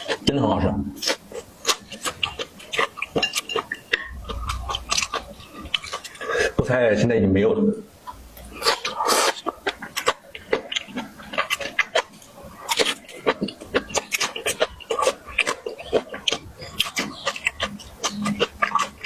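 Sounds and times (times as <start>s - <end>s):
chewing and mouth smacks: 1.0s - 6.6s, 8.4s - 19.0s.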